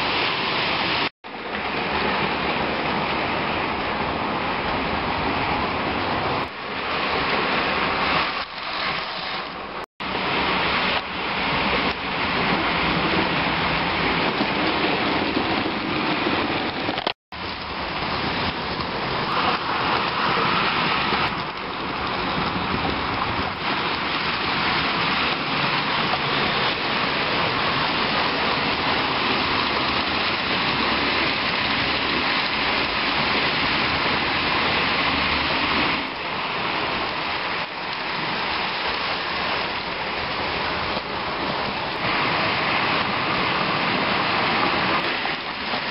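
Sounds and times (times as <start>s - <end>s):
model train wheels rattling on rails: 14.1s - 37.1s.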